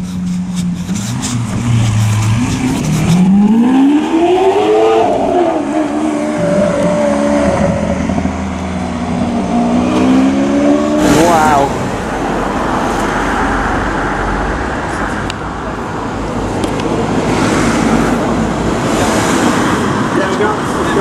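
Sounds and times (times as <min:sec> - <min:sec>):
car engine revving: 0:00.3 - 0:15.2.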